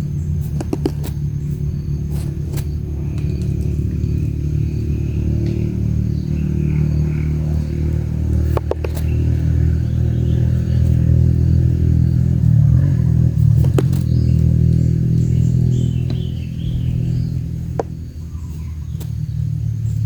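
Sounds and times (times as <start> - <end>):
loud low rumble: 0.0 - 20.0
sharp taps: 0.4 - 4.4, 6.3 - 11.1, 13.4 - 19.2.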